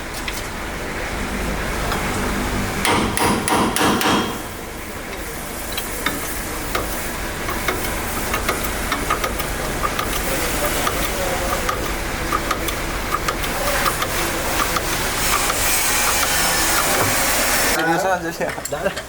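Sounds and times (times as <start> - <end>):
hammer strikes: 2.8 - 4.5, 10.8 - 17.5.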